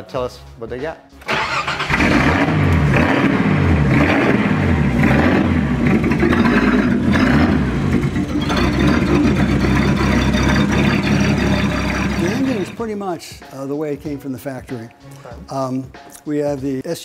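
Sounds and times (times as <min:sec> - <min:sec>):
car engine revving: 0:01.3 - 0:12.8.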